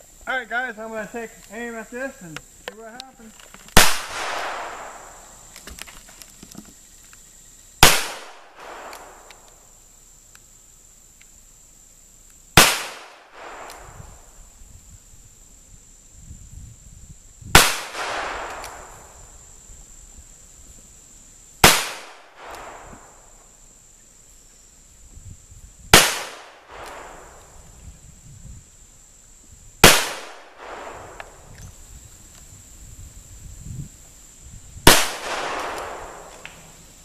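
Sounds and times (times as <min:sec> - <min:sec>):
gunshots with echo: 0:17.6 - 0:19.0, 0:34.9 - 0:36.4.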